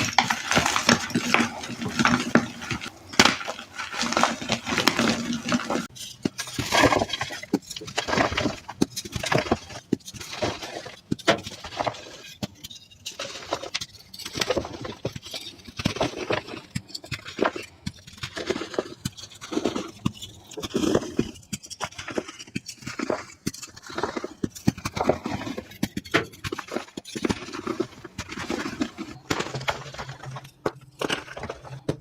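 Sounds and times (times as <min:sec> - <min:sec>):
chalk crunching: 0:00.0 - 0:08.7.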